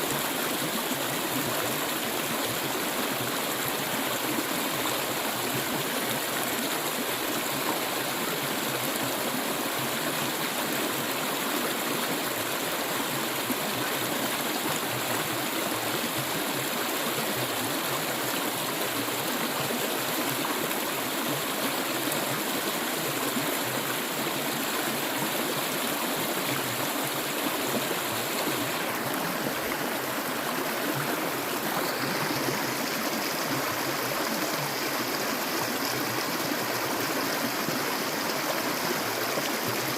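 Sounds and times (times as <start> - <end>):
water flowing: 0.0 - 39.9.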